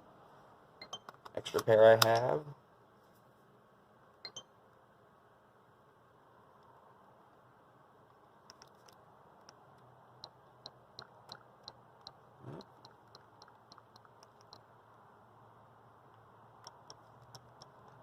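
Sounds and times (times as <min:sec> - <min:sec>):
controller buttons clicking: 0:10.2 - 0:14.7, 0:16.6 - 0:18.0.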